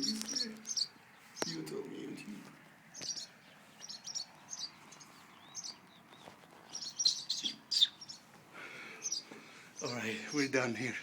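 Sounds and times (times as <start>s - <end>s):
small birds alarm calls: 0.0s - 11.0s.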